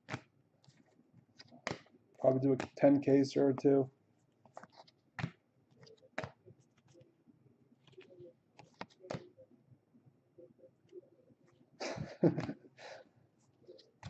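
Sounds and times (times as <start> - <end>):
trading cards being flipped: 0.0 - 1.9, 2.5 - 2.8, 4.4 - 7.0, 7.8 - 9.3.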